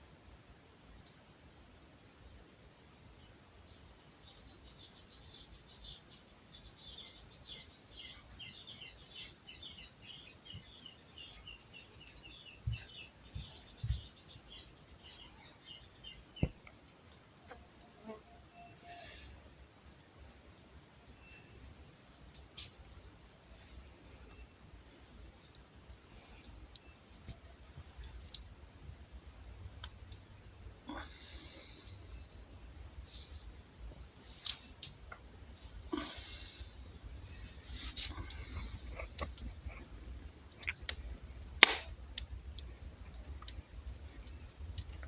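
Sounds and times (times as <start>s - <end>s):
low background hum: 0.0s - 45.0s
small birds chirping: 0.6s - 45.0s
sharp clicks and ticks: 25.4s - 30.3s, 38.2s - 45.0s.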